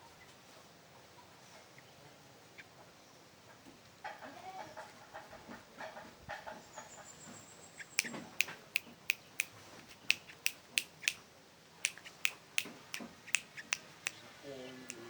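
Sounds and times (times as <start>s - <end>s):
bird chip calls: 6.4s - 15.0s.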